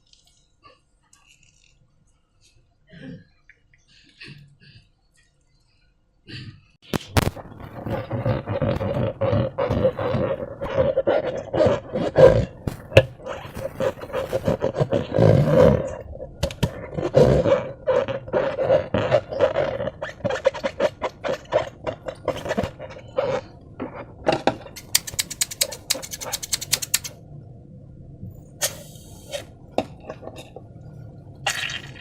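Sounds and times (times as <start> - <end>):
sharp clicks: 24.8 - 27.2.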